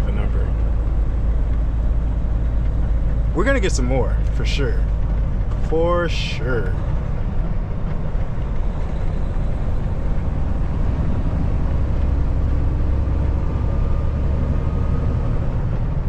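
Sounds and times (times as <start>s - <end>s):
truck engine and road rumble: 0.0s - 16.0s.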